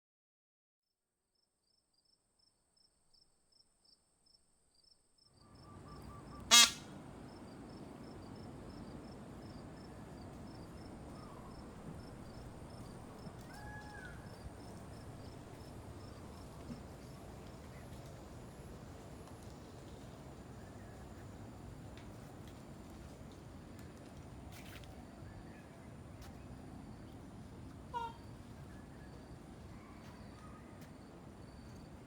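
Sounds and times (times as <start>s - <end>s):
outdoor ambience: 1.7s - 32.0s
faint bird calls: 5.7s - 6.8s, 27.9s - 29.0s
loud short honk: 6.5s - 6.9s.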